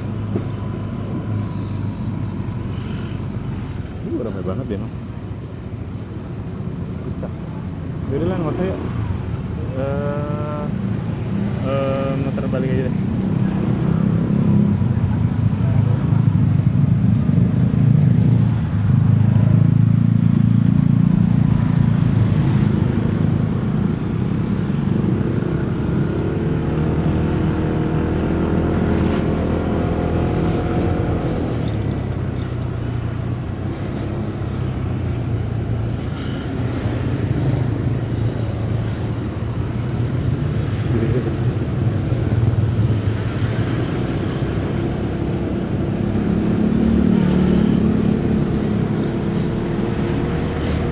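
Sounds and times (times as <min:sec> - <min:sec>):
traffic noise: 0:00.0 - 0:50.9.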